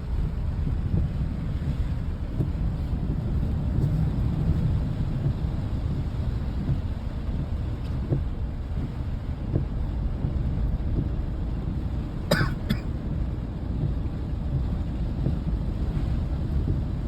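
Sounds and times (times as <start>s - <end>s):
low outdoor rumble: 0.0s - 17.0s
cough-like sound: 12.3s - 12.9s.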